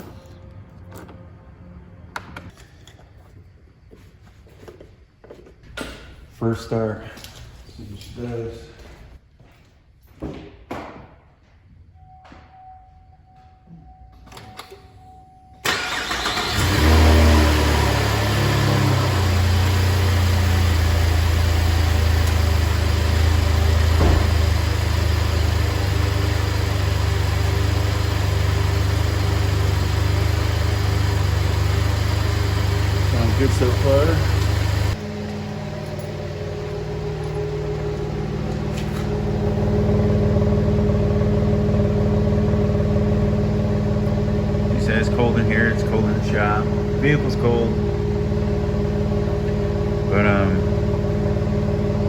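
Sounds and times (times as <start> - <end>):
car engine idling: 15.6 - 52.0
brief thump: 24.0 - 24.4.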